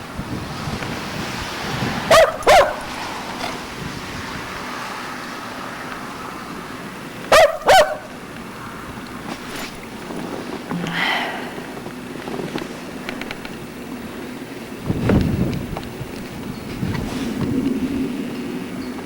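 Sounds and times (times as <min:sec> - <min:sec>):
dog barking: 0:02.0 - 0:03.1, 0:07.3 - 0:08.2.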